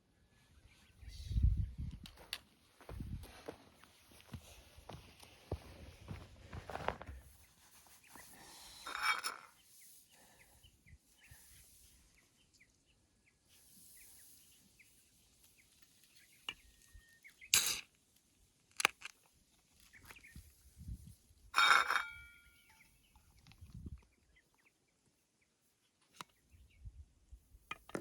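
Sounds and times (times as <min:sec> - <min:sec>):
birds chirping: 0:19.8 - 0:20.6, 0:22.0 - 0:25.0.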